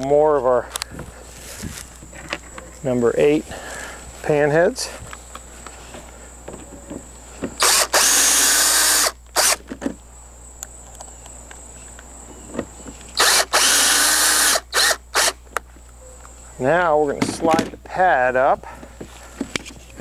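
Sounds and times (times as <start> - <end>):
cordless drill driving screws: 7.6 - 9.6, 13.2 - 15.4.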